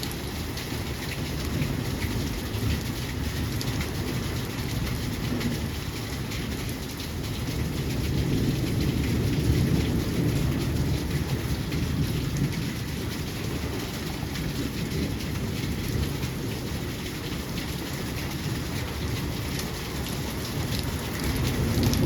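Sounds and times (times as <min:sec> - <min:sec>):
heavy rain falling: 0:00.0 - 0:22.0
deep steady rumble: 0:07.3 - 0:22.0.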